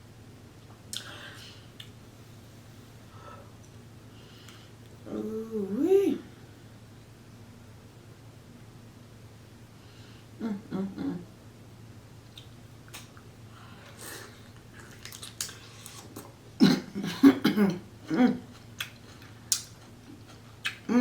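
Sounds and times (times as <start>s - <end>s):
woman coughing: 16.6s - 18.4s
woman clearing her throat: 16.6s - 18.5s
eating mouth clicks: 18.5s - 20.9s.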